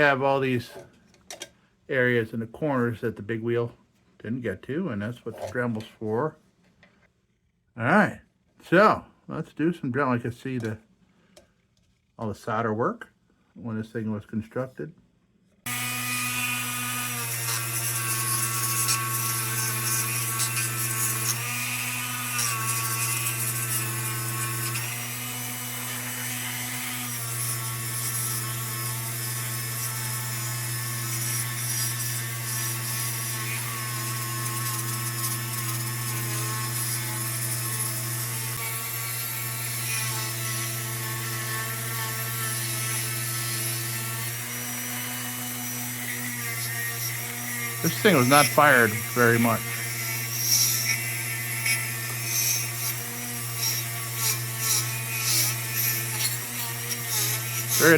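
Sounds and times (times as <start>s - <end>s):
rotary tool grinding metal: 15.7s - 57.9s.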